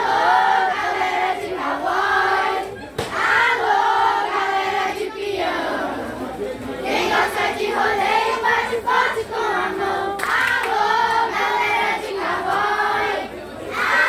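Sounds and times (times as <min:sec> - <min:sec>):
crowd singing unaccompanied: 0:00.0 - 0:14.0.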